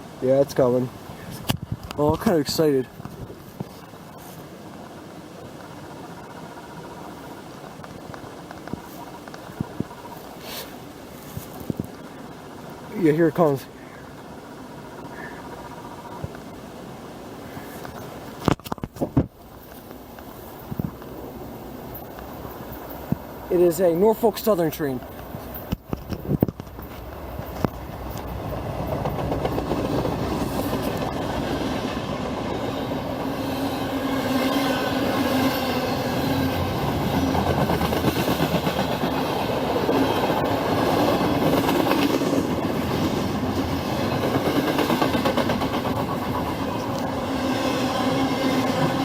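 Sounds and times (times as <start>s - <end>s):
freight train rumbling on rails: 20.8s - 49.0s.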